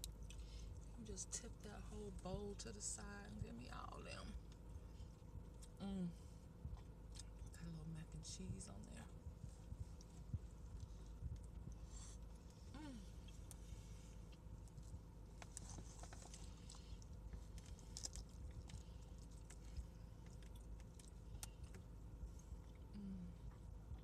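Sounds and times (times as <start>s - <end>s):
low rumble: 0.0s - 24.0s
steady low hum: 0.0s - 24.0s
person chewing: 13.2s - 23.6s.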